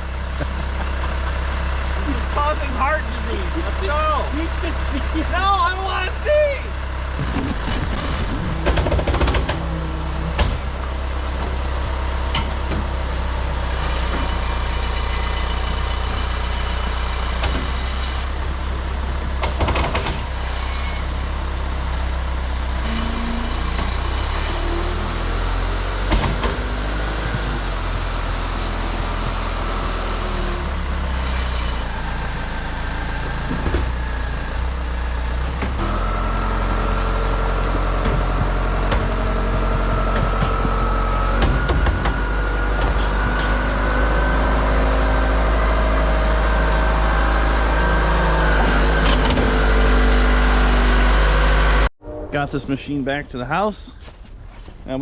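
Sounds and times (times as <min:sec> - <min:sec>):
truck engine drone: 0:00.0 - 0:54.4
road noise: 0:00.0 - 0:55.0
knocks and rattles: 0:07.2 - 0:16.3, 0:19.2 - 0:20.5, 0:25.1 - 0:30.1, 0:37.3 - 0:44.6.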